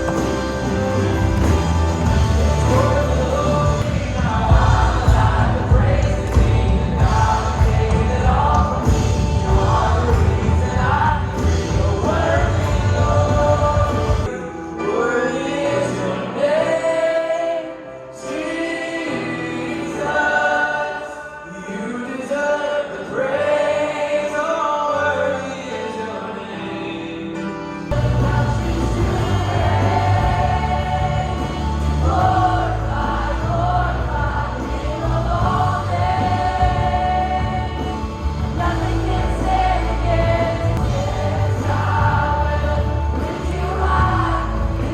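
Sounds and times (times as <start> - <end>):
heavy bass line: 0.0 - 14.3, 27.9 - 44.9
choir singing: 0.0 - 44.9.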